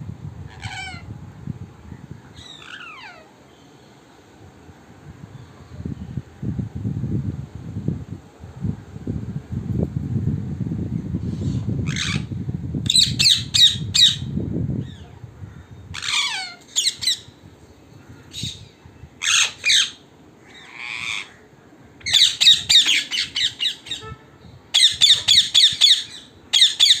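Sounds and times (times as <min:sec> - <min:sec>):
parrots squawking: 0:00.5 - 0:01.1, 0:02.4 - 0:03.3, 0:11.8 - 0:12.3, 0:15.9 - 0:17.3, 0:19.2 - 0:21.4, 0:22.0 - 0:24.0, 0:24.7 - 0:27.0.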